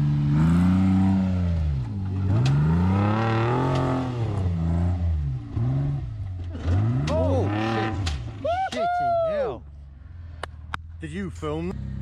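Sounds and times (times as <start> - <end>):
off-road vehicle engine revving: 0.0 - 8.6, 11.3 - 12.0.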